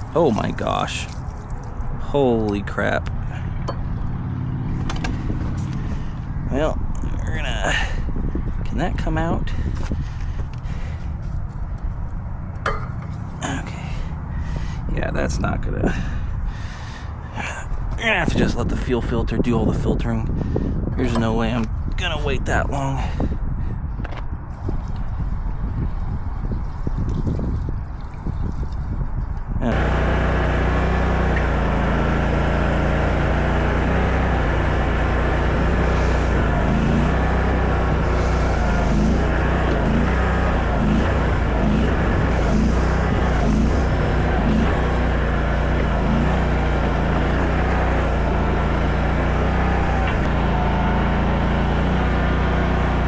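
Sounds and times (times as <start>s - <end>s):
skid steer engine running: 0.0s - 7.0s, 9.8s - 14.8s, 29.6s - 53.0s.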